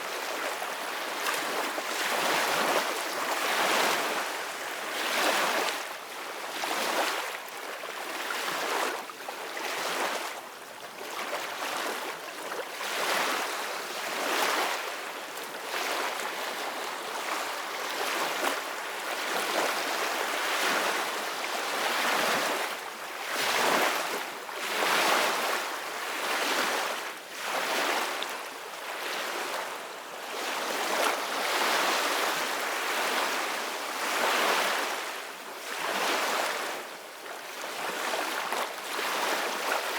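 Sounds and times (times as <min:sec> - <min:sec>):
ocean waves breaking on shore: 0:12.8 - 0:36.9, 0:37.6 - 0:39.9.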